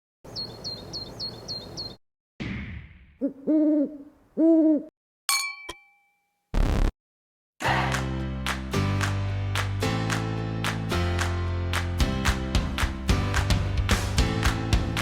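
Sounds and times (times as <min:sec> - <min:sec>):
owl-like hoots: 0:03.2 - 0:04.9
metallic clang with ringing tail: 0:05.3 - 0:06.1.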